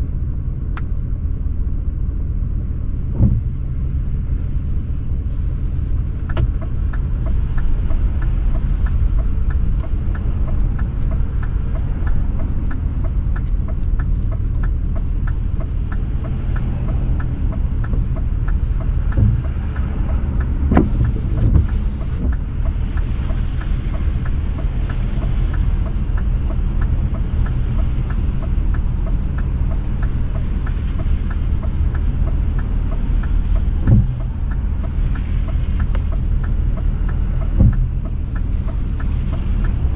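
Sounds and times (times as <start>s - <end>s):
car engine rumbling: 0.0s - 39.9s
brief thumps: 20.6s - 22.4s.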